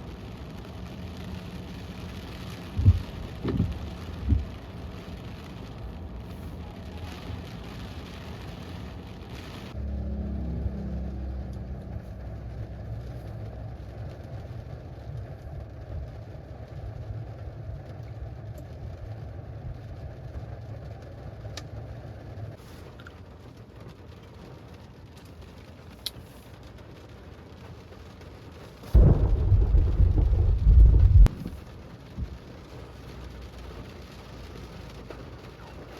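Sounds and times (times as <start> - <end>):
rain falling on a car: 0.0 - 35.9
low rumble of thunder: 2.7 - 4.5, 28.9 - 32.4.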